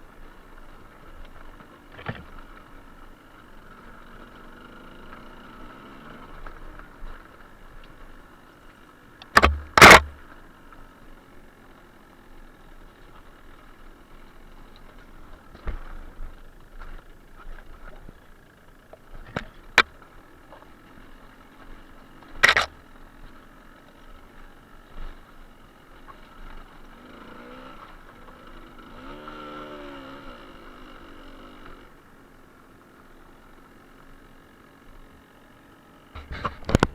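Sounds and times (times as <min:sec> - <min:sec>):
sharp knocks and clicks: 0:09.2 - 0:10.2, 0:22.4 - 0:22.7
vehicle engine rising and falling: 0:09.2 - 0:10.3, 0:26.9 - 0:31.9.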